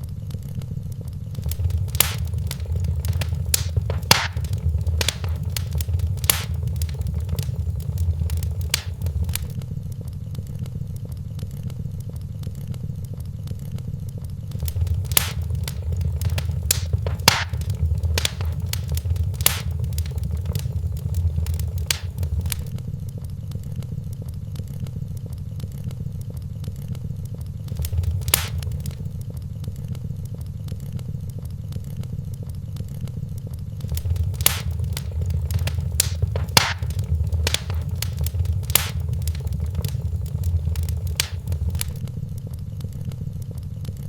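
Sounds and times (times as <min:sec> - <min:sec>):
fire crackling and popping: 0:01.3 - 0:09.6, 0:14.5 - 0:22.8, 0:27.7 - 0:29.2, 0:33.8 - 0:42.5
fire rumbling: 0:01.4 - 0:09.6, 0:14.5 - 0:22.8, 0:27.7 - 0:29.2, 0:33.8 - 0:42.1.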